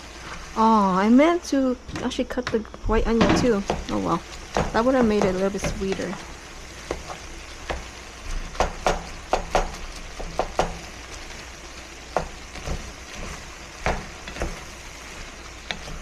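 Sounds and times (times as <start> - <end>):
rice sizzling in a pan: 0.0 - 16.0
utensil knocking and scraping pan: 3.2 - 6.2, 6.8 - 11.2, 12.1 - 16.0.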